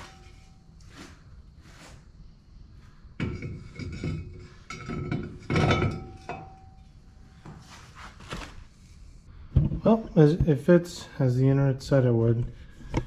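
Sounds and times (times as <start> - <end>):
metal wheel rim clanking on hub: 3.2 - 6.9.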